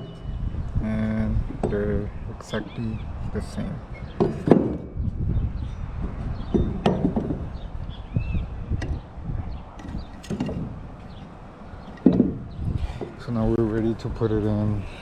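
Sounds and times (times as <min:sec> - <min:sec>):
metal parts knocking and clicking: 0:09.8 - 0:10.7.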